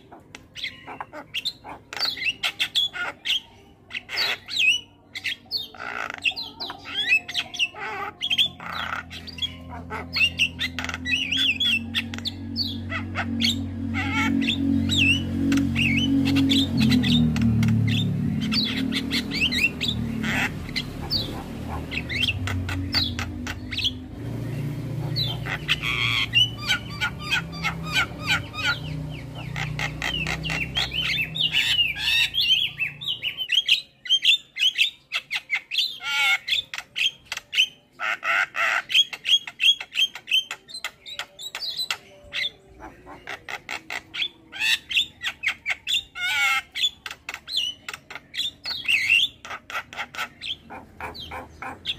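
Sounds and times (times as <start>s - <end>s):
birds squawking and chattering: 0.0s - 51.9s
low droning background: 8.6s - 32.4s.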